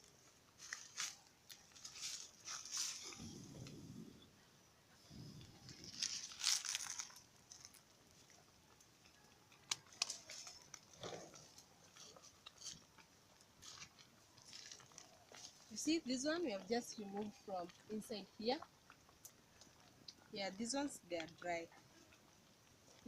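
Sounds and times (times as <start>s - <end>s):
firewood sticks crunching and snapping: 0.0s - 3.3s, 5.6s - 8.9s, 9.5s - 15.7s.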